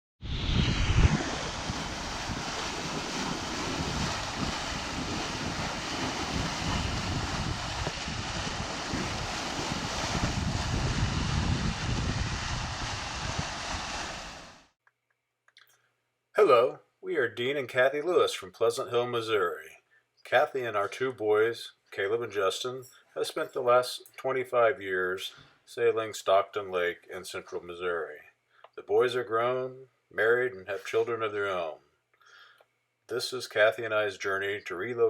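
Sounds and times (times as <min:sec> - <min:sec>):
gusts buffeting microphone: 0:00.2 - 0:14.6
water noise: 0:00.2 - 0:14.7
wind: 0:00.2 - 0:14.8.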